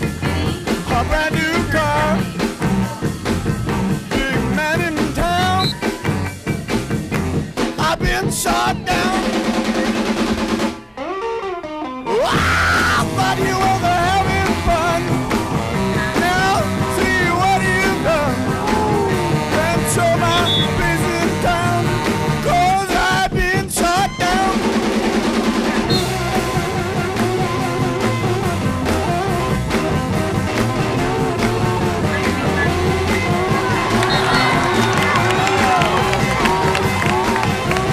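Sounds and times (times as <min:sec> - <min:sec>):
person singing: 0:00.0 - 0:03.1, 0:04.1 - 0:06.0, 0:07.7 - 0:09.4, 0:12.1 - 0:24.8
rock music with electric guitar: 0:00.0 - 0:37.9.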